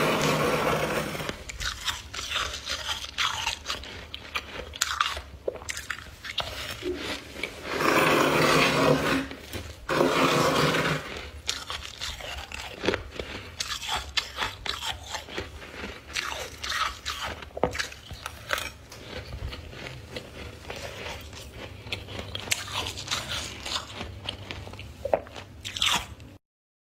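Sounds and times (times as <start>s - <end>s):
chewing ice crunches: 0.0s - 26.4s.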